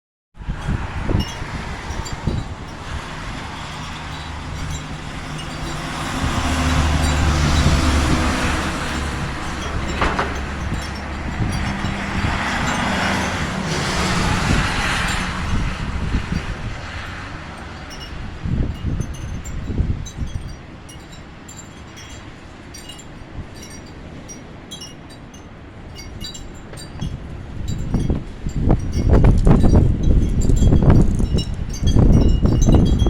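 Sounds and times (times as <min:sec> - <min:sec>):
vehicle engine humming: 0:00.5 - 0:24.7.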